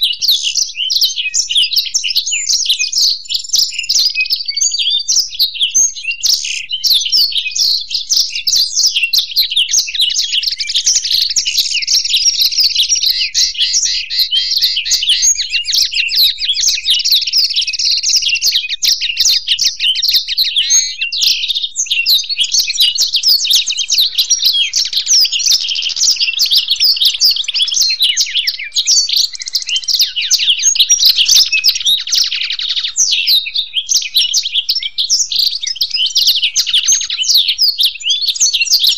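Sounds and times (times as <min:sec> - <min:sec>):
birds twittering song: 0:00.0 - 0:38.9.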